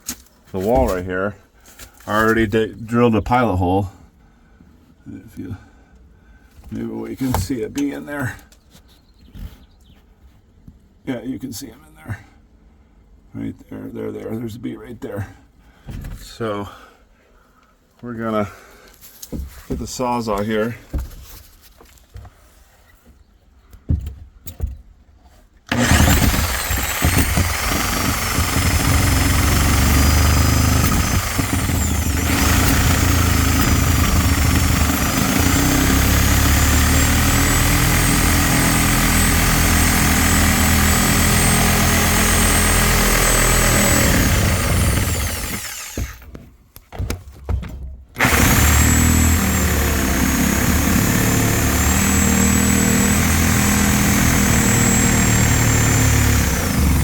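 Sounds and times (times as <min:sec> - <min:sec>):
reciprocating saw cutting: 0:25.7 - 0:46.3, 0:48.2 - 0:57.0.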